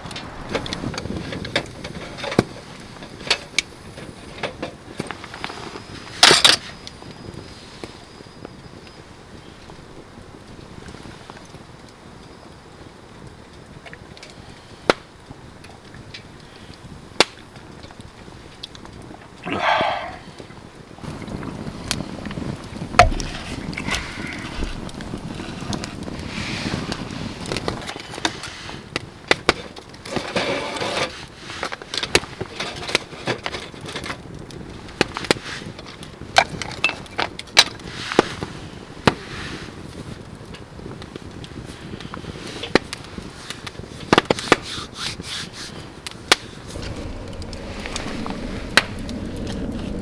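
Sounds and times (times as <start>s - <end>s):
wood cracking and knocking: 22.9s - 25.4s
scraping and rustling: 30.0s - 33.6s.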